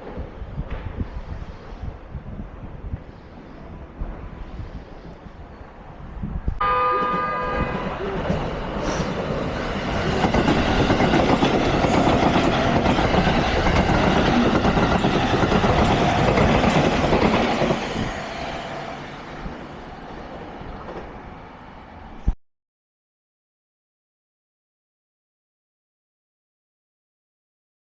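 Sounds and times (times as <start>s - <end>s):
train passing by: 0.0s - 22.4s
train horn blast: 6.6s - 8.2s.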